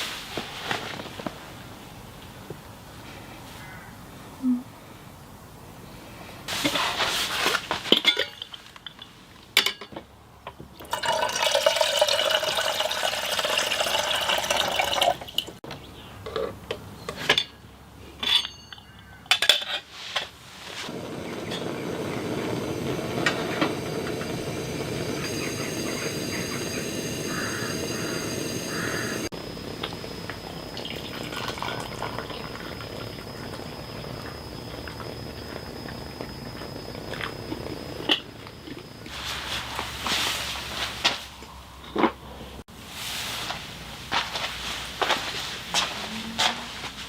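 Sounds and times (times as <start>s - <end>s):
water pouring into a pot: 10.9s - 15.6s, 23.0s - 29.3s, 30.7s - 33.2s
water rushing: 21.9s - 29.3s.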